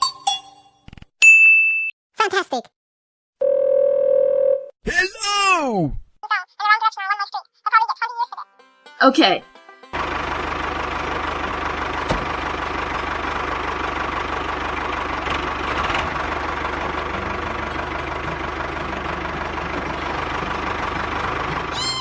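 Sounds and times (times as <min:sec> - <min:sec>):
engine idling: 0:10.0 - 0:22.0.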